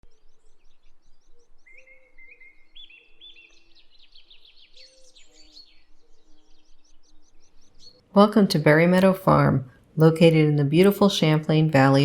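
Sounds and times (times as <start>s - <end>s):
songbirds chirping and singing: 0.1s - 9.1s.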